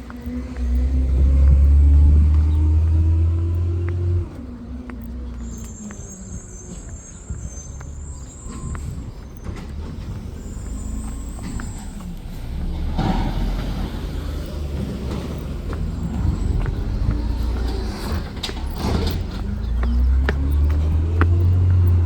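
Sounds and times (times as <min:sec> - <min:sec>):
garbage truck engine revving: 0:09.5 - 0:22.0.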